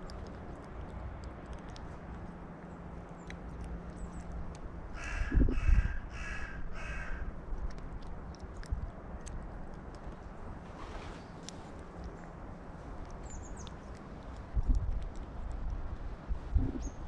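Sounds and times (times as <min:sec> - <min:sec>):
crow cawing: 0:05.0 - 0:07.3.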